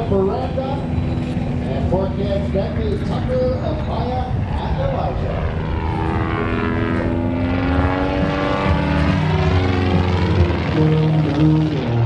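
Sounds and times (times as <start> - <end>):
propeller plane drone: 0.0 - 12.0.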